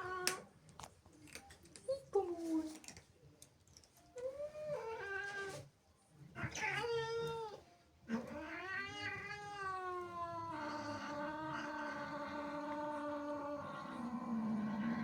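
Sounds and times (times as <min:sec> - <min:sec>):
cat yowling angrily: 0:08.1 - 0:15.0.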